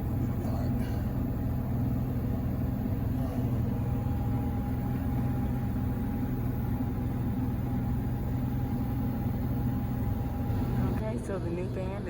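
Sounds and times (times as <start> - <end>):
steady thin whine: 0.0 - 11.0
vehicle engine rumbling: 0.0 - 12.0.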